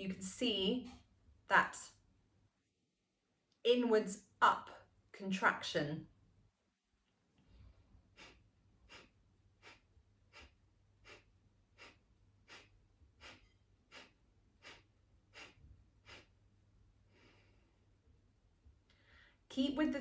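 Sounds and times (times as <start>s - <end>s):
sharp nasal exhales: 8.2s - 16.3s.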